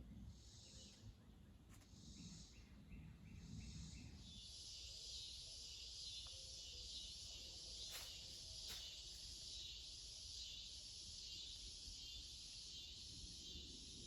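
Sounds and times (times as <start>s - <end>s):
insects hissy pulses: 4.2s - 14.0s
high insect buzz: 4.4s - 14.0s.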